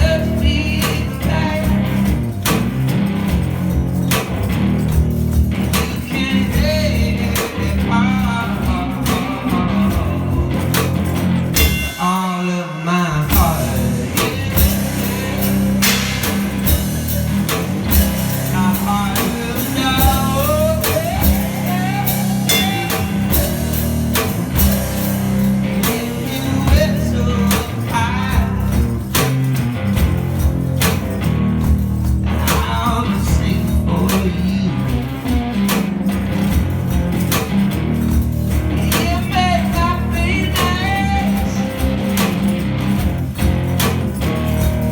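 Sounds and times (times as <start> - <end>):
person singing: 0.0 - 2.3, 5.7 - 29.1, 32.3 - 35.6, 38.7 - 42.2
drum beat: 0.0 - 12.3, 13.2 - 44.9
guitar chords: 0.0 - 44.9.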